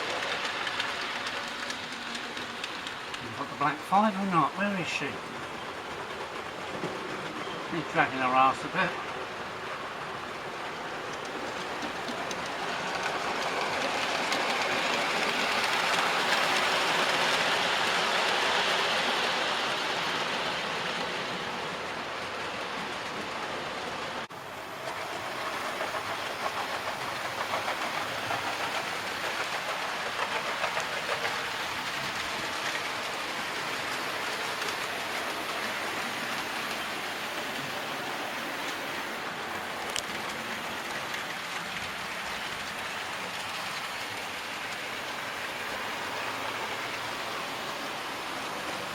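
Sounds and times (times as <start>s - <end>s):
wheels ticking over rail: 10.2s - 19.2s.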